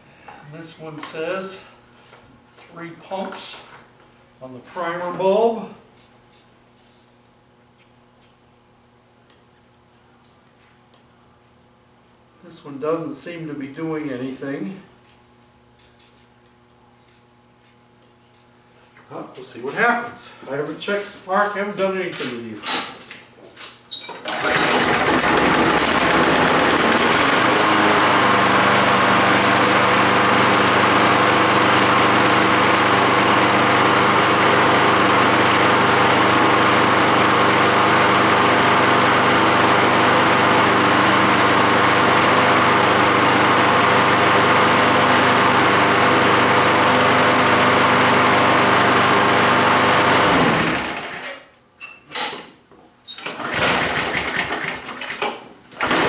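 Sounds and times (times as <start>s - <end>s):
lawn mower engine running: 24.2s - 51.4s, 53.4s - 55.0s, 55.7s - 56.0s.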